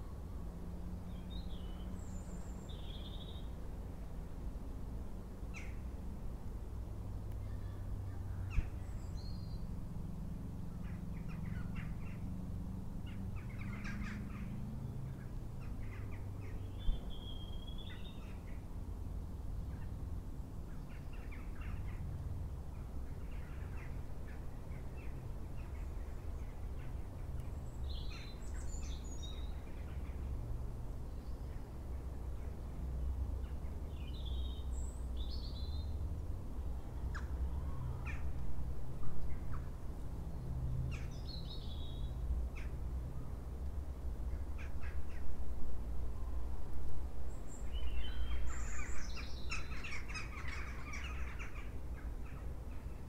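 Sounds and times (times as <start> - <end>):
birds calling and chirping: 13.0 - 14.6, 47.3 - 53.0.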